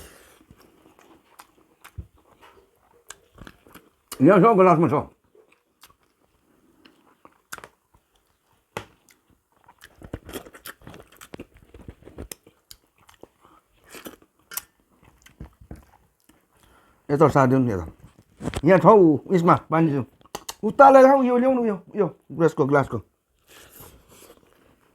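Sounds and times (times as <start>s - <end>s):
person chewing and crunching food: 0.0s - 4.2s, 5.1s - 17.0s, 20.1s - 20.6s, 23.4s - 24.9s.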